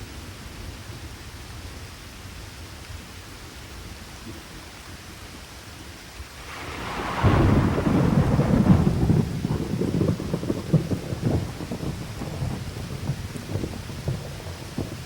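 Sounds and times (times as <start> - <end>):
steady rain falling: 0.0 - 15.0
thunder crack and rumble: 6.3 - 15.0.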